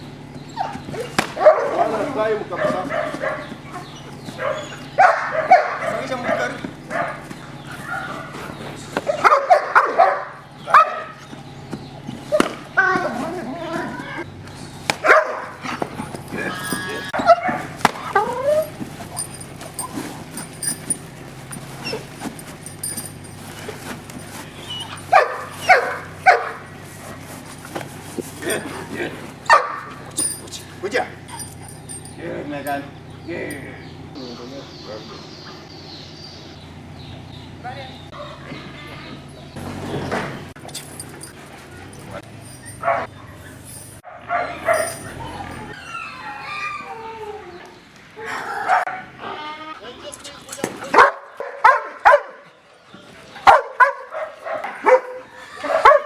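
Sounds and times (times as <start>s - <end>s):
dogs barking: 0.1s - 56.0s
dog barking: 0.6s - 11.2s, 15.0s - 16.0s, 16.6s - 19.9s, 24.6s - 27.4s, 29.5s - 30.1s, 38.1s - 38.6s, 41.6s - 43.4s, 44.0s - 45.7s, 48.5s - 49.3s, 50.8s - 52.5s, 53.4s - 56.0s.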